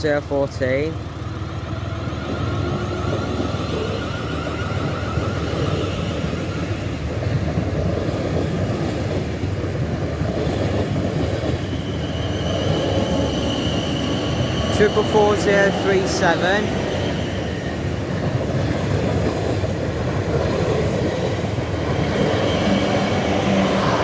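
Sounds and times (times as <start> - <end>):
train wheel rumble on rails: 0.0 - 24.0
higher whine: 1.0 - 7.5, 11.5 - 24.0
traction motor whine: 1.1 - 7.4, 11.6 - 24.0.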